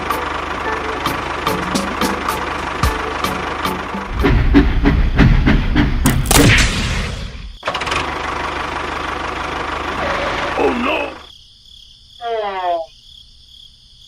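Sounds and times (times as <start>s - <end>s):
knocks and clattering: 4.1s - 6.7s.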